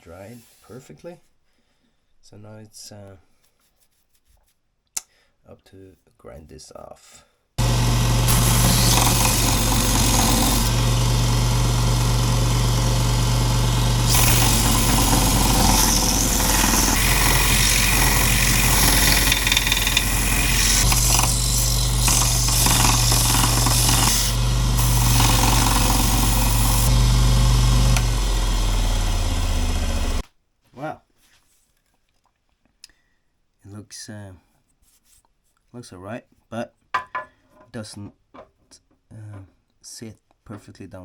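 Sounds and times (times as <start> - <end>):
electric grinder grinding wood: 7.6 - 30.2.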